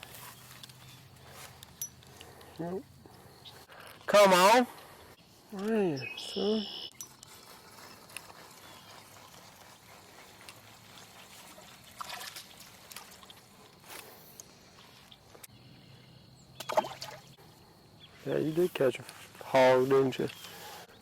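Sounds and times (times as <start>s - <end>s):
pond water splashing and dripping: 6.4s - 15.5s, 16.5s - 17.4s.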